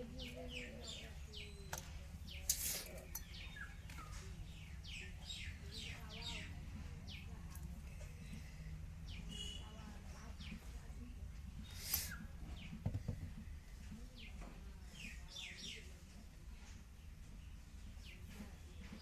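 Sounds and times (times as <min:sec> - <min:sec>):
birds chirping: 0:00.0 - 0:16.0
knocks: 0:12.8 - 0:13.4.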